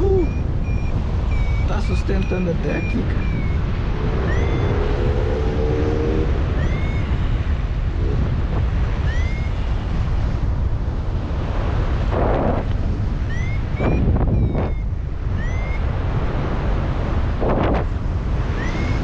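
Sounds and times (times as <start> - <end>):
wind buffeting microphone: 0.0 - 19.0
short rising chirp: 0.3 - 1.7, 3.2 - 5.4, 6.6 - 7.2, 9.0 - 9.6, 13.3 - 14.8, 15.4 - 15.8, 18.6 - 19.0.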